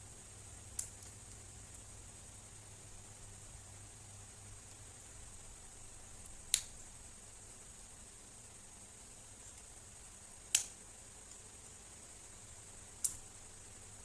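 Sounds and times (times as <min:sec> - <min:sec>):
faint steady hiss: 0:00.0 - 0:14.0
sharp clicks of small parts: 0:00.7 - 0:01.8, 0:06.2 - 0:06.8, 0:10.5 - 0:11.5, 0:13.0 - 0:13.3.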